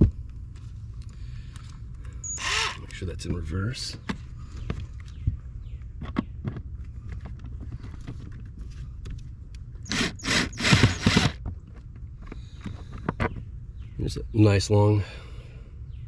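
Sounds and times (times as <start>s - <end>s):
cordless drill running in bursts: 2.4s - 2.8s, 9.9s - 11.4s.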